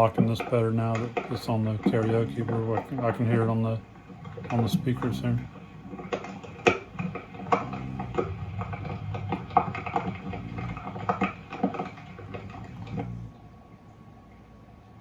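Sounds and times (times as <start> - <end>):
low murmur: 0.0 - 15.0
recorded rain through a loudspeaker: 7.4 - 13.2.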